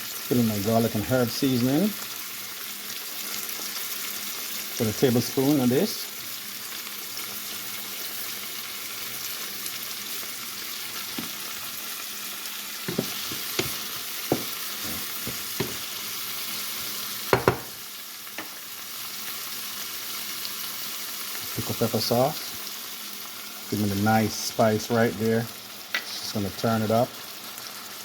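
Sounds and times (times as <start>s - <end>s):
onions and tomatoes sizzling in oil: 0.0s - 28.0s
knocks in a skillet: 12.8s - 15.9s, 17.3s - 17.8s.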